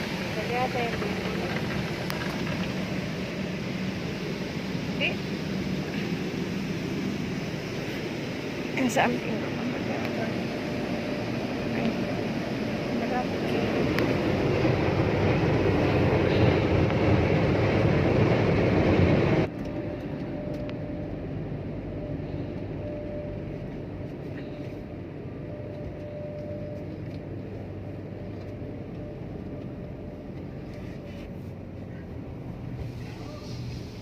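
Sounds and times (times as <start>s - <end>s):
car wash equipment rushing: 0.0s - 19.8s
steady hum: 0.0s - 33.0s.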